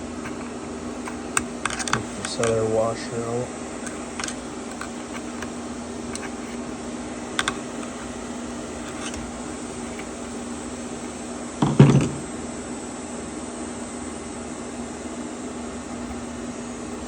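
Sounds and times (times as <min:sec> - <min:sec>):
steady low hum: 0:00.0 - 0:17.0
small metal parts clicking: 0:03.8 - 0:04.9.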